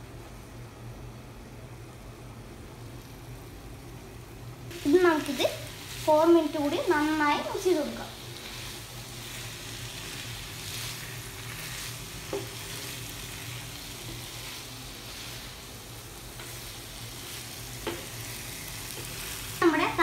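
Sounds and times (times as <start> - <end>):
chicken sizzling on pan: 4.6 - 20.0.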